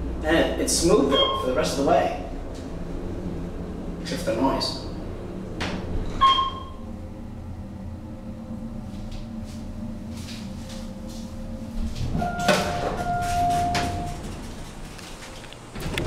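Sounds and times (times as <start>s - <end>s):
elevator hum: 0.0s - 16.0s
elevator stopping clunk: 1.0s - 1.7s, 5.4s - 7.1s, 8.9s - 16.0s.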